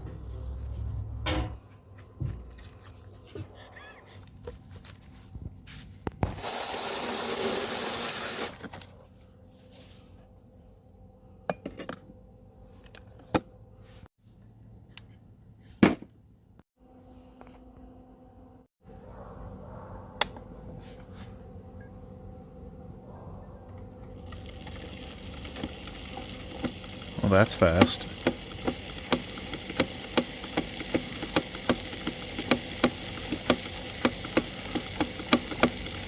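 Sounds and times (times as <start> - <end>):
coffee maker hissing: 6.2 - 8.6, 24.0 - 36.0.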